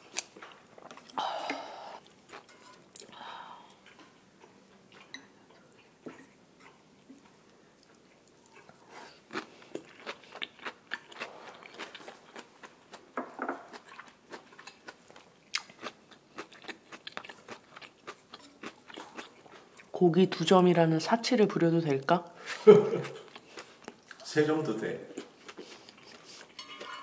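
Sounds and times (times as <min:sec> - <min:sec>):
chewing meat with mouth clicks: 0:02.0 - 0:20.0.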